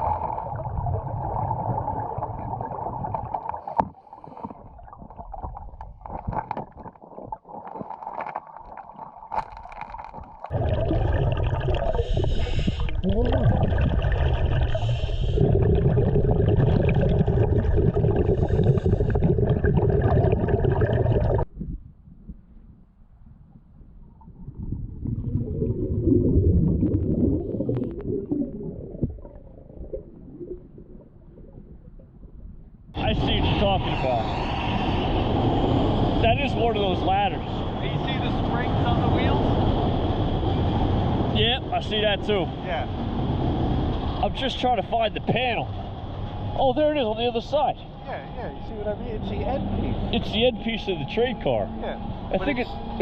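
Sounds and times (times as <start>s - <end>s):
diver's regulator bubbling: 0.0s - 21.5s, 23.8s - 32.9s
low underwater rumble: 0.0s - 36.6s
scattered clicks and crackles: 5.4s - 10.5s.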